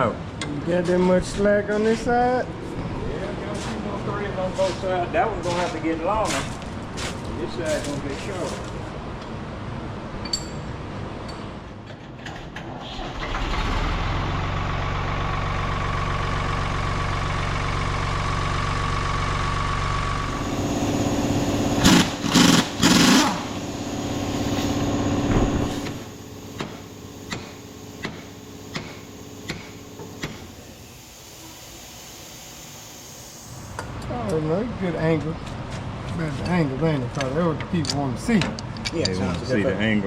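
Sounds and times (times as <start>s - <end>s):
engine running: 12.9s - 31.9s
loud mechanical bursts: 20.2s - 31.5s.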